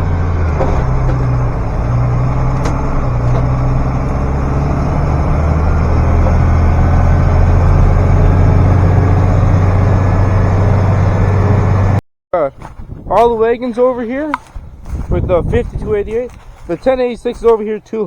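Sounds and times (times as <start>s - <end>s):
tractor engine droning: 0.0s - 12.0s.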